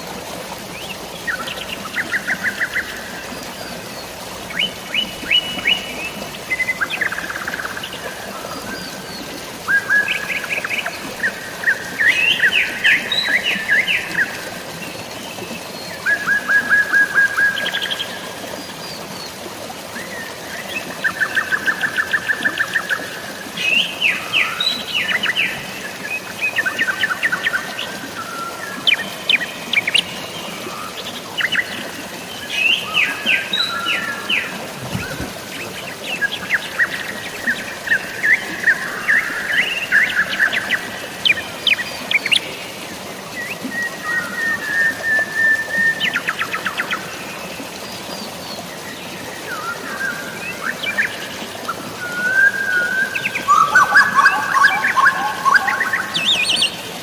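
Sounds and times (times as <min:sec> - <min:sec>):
drizzling rain: 0:00.0 - 0:57.0
waterfall: 0:00.0 - 0:57.0
songbirds chirping and trilling: 0:48.6 - 0:57.0.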